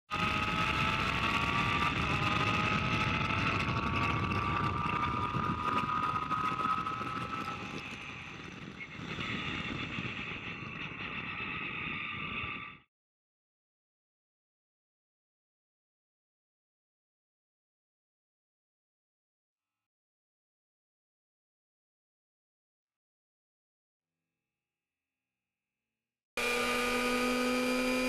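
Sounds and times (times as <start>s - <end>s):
race car engine high revs: 26.4s - 28.0s.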